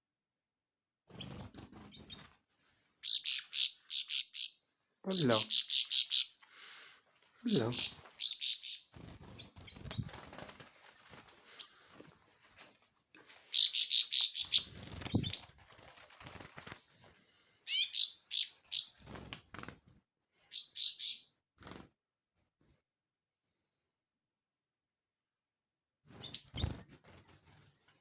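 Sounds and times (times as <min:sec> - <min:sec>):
small bird chirping: 0:01.1 - 0:02.3, 0:03.0 - 0:06.4, 0:07.5 - 0:11.8, 0:13.5 - 0:15.5, 0:17.7 - 0:19.2, 0:20.5 - 0:21.3, 0:26.2 - 0:28.0.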